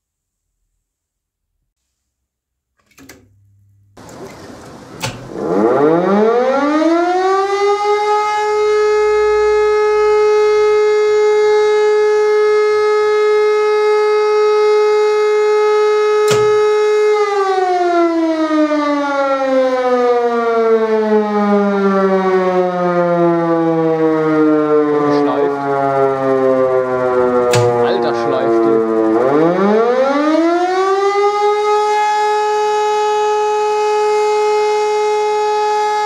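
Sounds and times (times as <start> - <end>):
civil defence siren wailing: 4.0 - 36.0
click of siren drive: 5.0 - 6.0, 16.2 - 17.4, 27.4 - 28.1.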